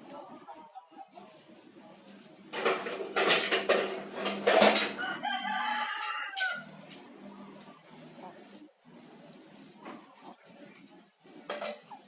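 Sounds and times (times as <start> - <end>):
rooster crowing: 4.8 - 6.7.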